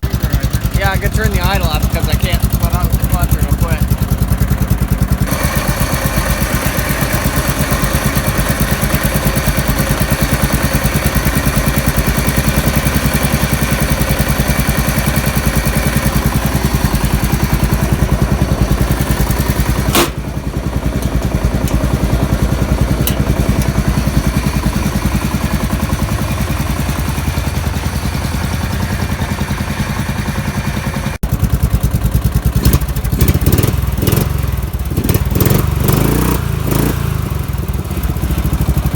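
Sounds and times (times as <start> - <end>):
riding mower engine idling: 0.0 - 38.9.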